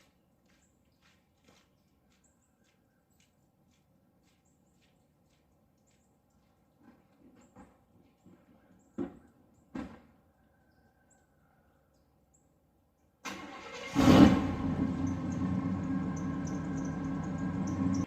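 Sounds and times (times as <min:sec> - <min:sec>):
truck engine starting and idling: 0:13.2 - 0:18.0.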